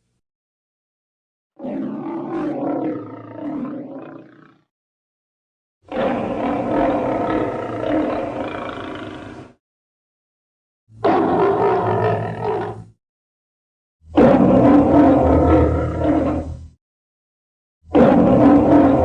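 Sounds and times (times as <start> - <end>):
lion roaring: 1.6 - 4.7, 5.9 - 9.6, 11.0 - 13.0, 14.1 - 16.8, 17.9 - 19.0.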